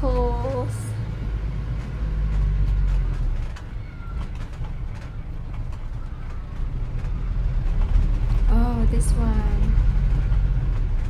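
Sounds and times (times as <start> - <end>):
low street rumble: 0.0 - 11.0
faint clicks and knocks: 1.6 - 8.5.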